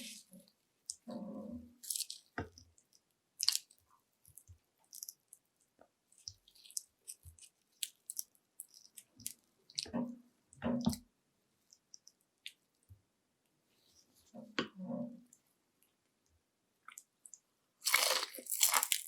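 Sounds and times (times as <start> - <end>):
crunchy chewing: 16.9 - 19.0.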